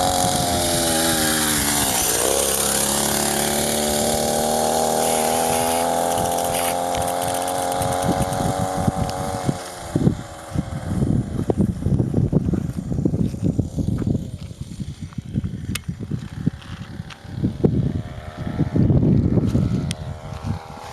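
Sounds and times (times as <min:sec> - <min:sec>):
low rumbling and buffeting: 0:00.0 - 0:20.9
moped engine at high revs: 0:00.0 - 0:20.9.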